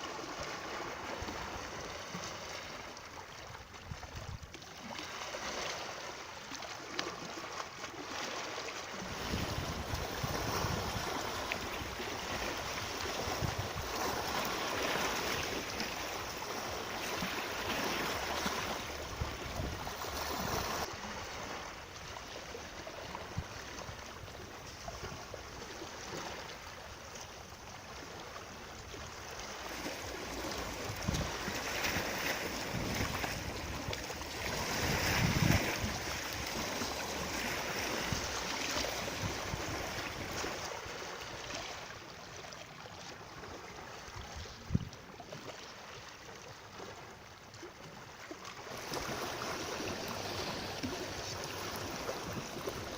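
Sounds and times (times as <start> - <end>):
water rushing: 4.8 - 27.0, 27.9 - 42.1, 48.4 - 52.9.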